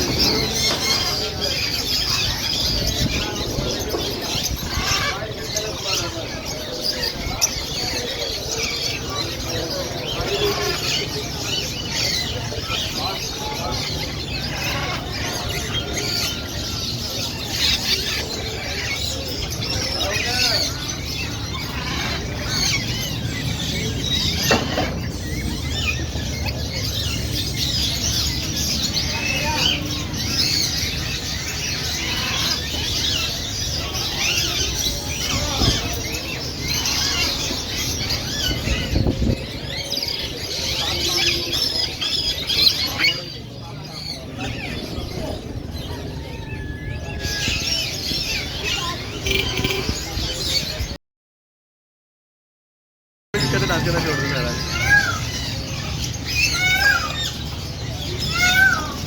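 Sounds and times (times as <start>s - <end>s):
parrots chirping and squawking: 0.0s - 50.9s, 53.4s - 59.0s.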